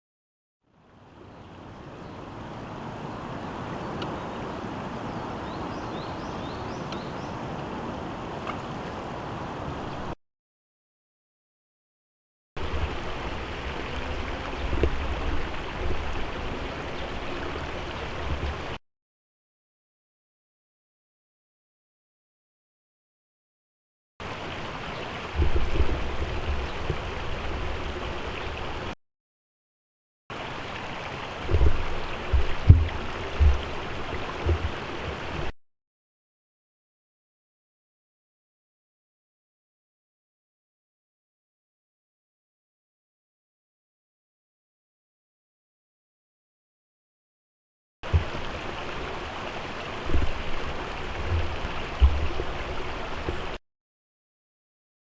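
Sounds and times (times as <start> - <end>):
river water running: 0.6 - 10.2, 12.6 - 18.8, 24.2 - 29.0, 30.3 - 35.6, 48.0 - 53.6
low thumps: 31.5 - 33.8, 50.0 - 53.5.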